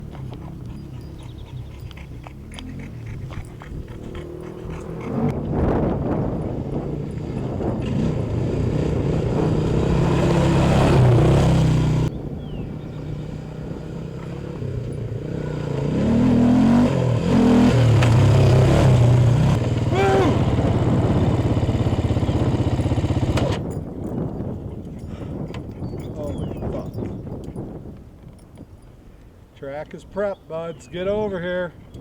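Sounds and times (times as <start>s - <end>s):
small motorcycle engines revving: 0.0s - 23.8s.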